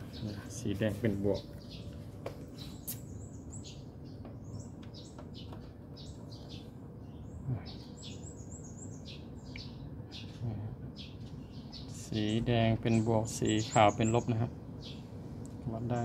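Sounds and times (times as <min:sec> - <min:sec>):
small birds chirping: 0:00.0 - 0:16.0
steady low background noise: 0:00.0 - 0:16.0.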